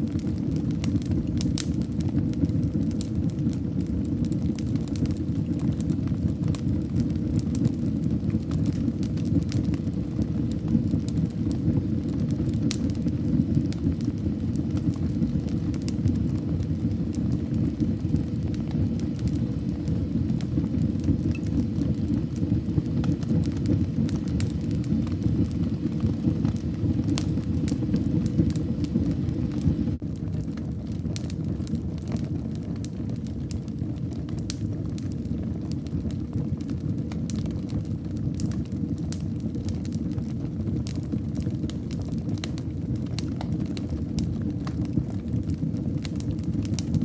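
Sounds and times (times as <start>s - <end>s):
fire crackling in fireplace: 0.0s - 47.0s.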